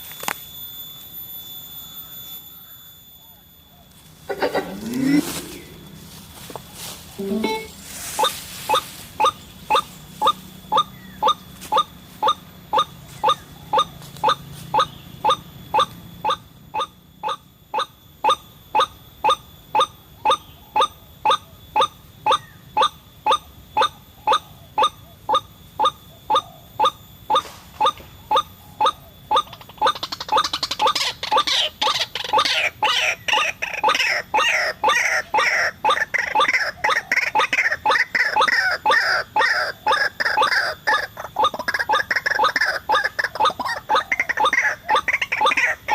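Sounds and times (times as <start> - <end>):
faint low hum: 0.3 - 45.9
waterhen call: 4.3 - 6.0, 7.2 - 11.4, 27.8 - 45.9.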